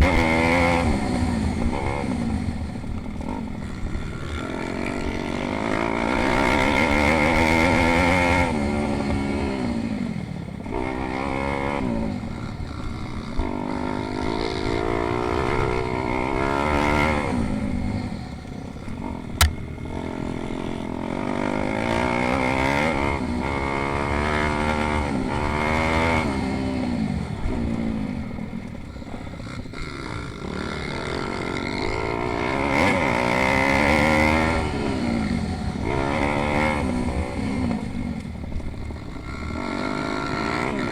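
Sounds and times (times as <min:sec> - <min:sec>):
pit bike engines revving: 0:00.0 - 0:40.9
sharp click: 0:19.4 - 0:19.6.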